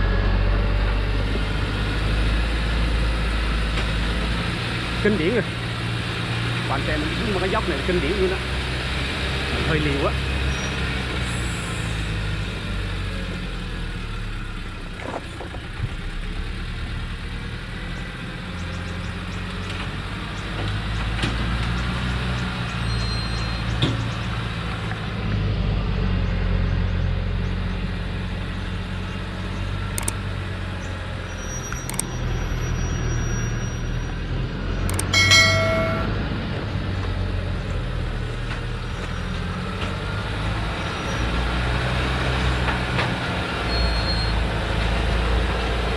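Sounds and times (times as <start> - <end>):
truck diesel engine running: 0.0 - 45.9
brief high-pitched tones: 35.0 - 36.2.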